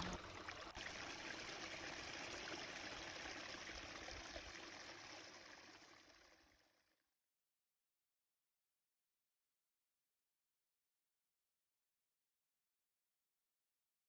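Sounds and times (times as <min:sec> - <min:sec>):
small stream trickling: 0:00.0 - 0:07.0.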